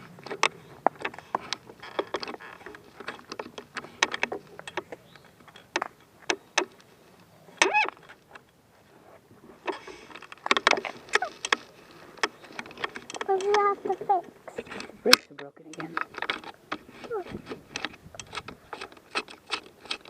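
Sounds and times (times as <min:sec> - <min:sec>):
bicycle clicks and rattles: 0:00.0 - 0:06.9, 0:09.6 - 0:20.0
short squeak: 0:07.6 - 0:08.0.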